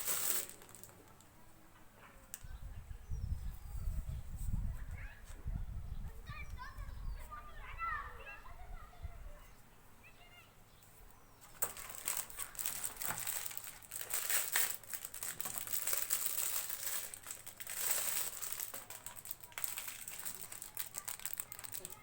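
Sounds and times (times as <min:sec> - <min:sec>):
packaging rustling and crackling: 0:00.0 - 0:01.3, 0:11.4 - 0:22.0.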